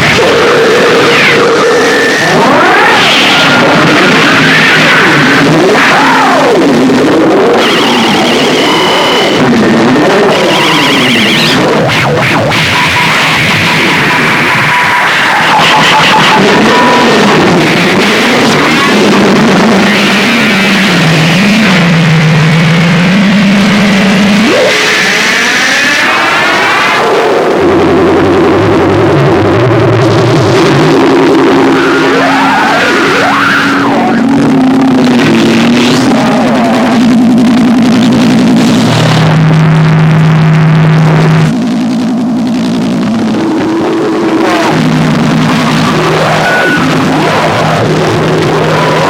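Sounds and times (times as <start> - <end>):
dense distorted noise music: 0.0 - 49.0
steady low drone: 27.2 - 49.0
warbling low tone: 27.4 - 49.0.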